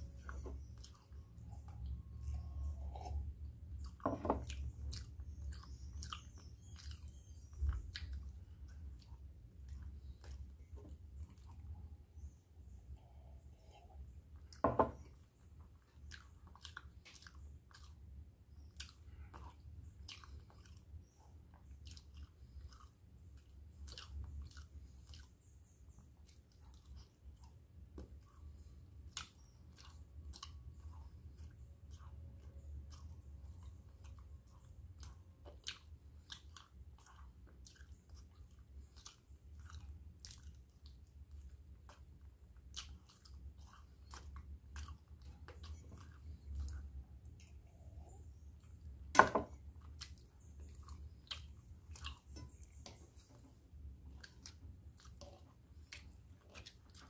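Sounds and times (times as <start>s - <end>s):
person chewing food: 0.0s - 57.0s
wet lip and tongue clicks: 3.8s - 10.6s, 29.0s - 47.8s, 49.8s - 53.4s, 54.1s - 57.0s.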